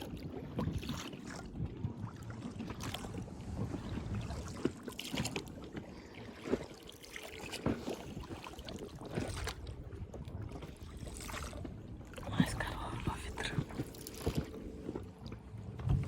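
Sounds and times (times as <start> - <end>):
water knocking against hull: 0.0 - 16.0
steady low rumble: 11.8 - 16.0.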